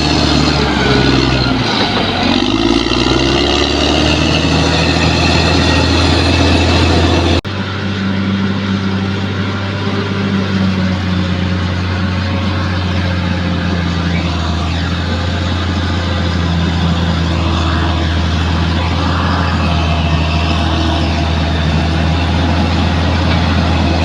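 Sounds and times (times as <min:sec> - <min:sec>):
bulldozer diesel engine under load: 0:00.0 - 0:24.0
faint high whines: 0:13.9 - 0:22.6.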